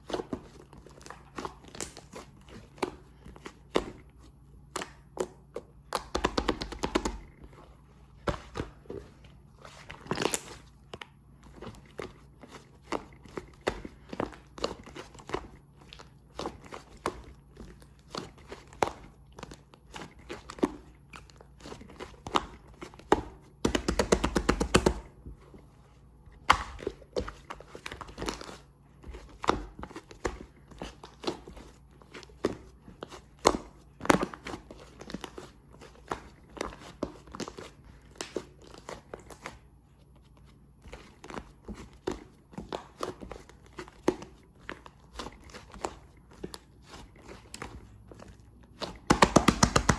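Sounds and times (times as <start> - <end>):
sticky clicks and pops: 49.1 - 49.9.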